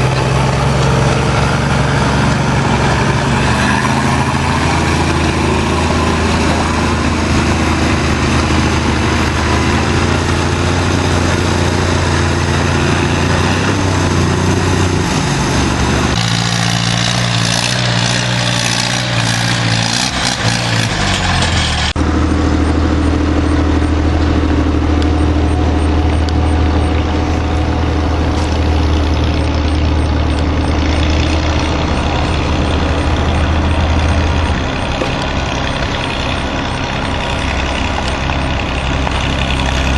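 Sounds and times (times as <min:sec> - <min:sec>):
tractor engines running: 0:00.0 - 0:39.9.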